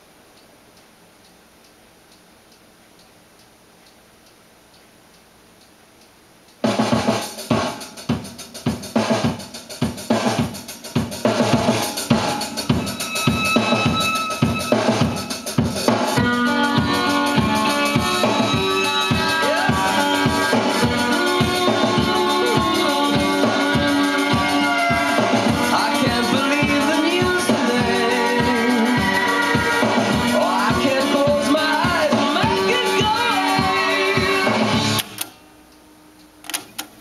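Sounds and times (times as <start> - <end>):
band music from cassette: 6.5 - 35.4
drum beats: 6.6 - 35.0.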